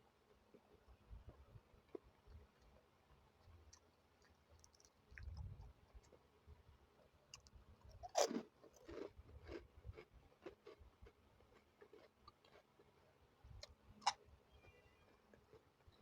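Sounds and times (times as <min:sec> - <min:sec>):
person crunching food: 0:03.4 - 0:06.2, 0:07.3 - 0:13.0.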